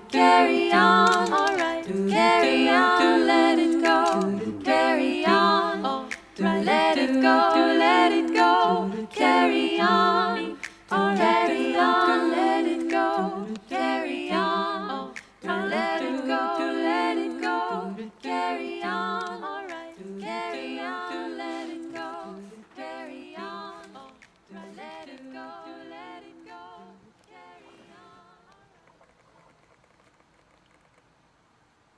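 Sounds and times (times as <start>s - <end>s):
a cappella vocal harmony: 0.0s - 29.2s.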